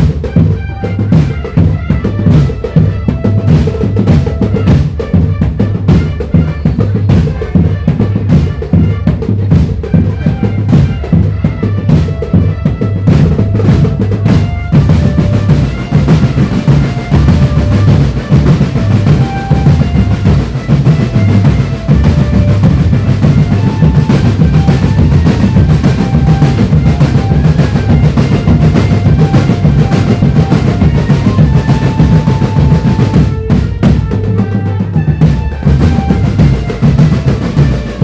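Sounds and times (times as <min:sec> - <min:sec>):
bass drums and snare drums: 0:00.0 - 0:38.0
held-note melody line: 0:13.5 - 0:38.0.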